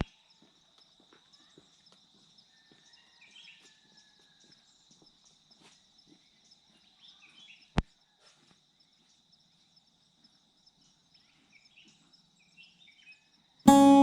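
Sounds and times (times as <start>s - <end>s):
steady high tone: 13.7s - 14.0s.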